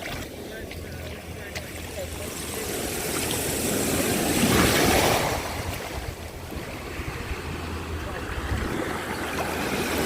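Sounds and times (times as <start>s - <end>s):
surf breaking on sandy beach: 2.1s - 10.0s.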